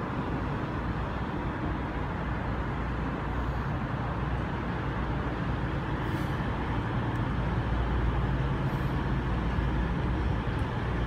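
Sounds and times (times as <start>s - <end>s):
train diesel engines humming: 0.0s - 11.0s
short faint hisses: 6.0s - 6.5s.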